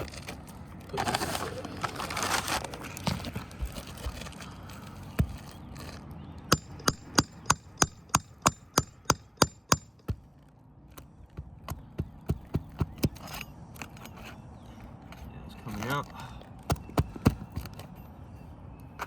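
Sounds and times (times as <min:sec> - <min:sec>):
hammer striking metal: 0:06.5 - 0:10.2.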